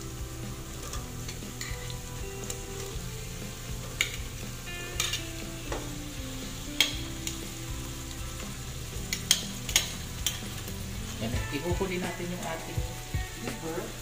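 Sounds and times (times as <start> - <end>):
food sizzling in hot oil: 0.0 - 14.0
metal spoon clinking on pot: 3.9 - 4.3, 5.0 - 5.2, 6.8 - 7.1, 9.1 - 10.5.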